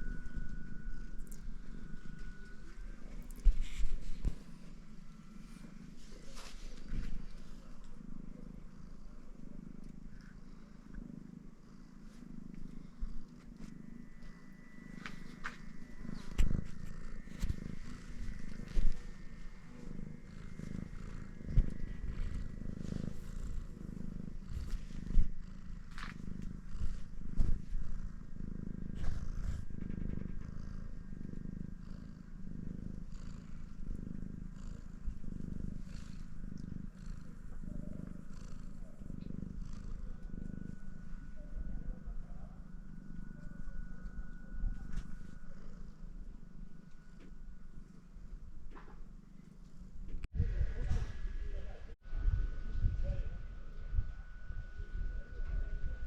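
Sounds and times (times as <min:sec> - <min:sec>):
cat purring: 0:00.0 - 0:56.0.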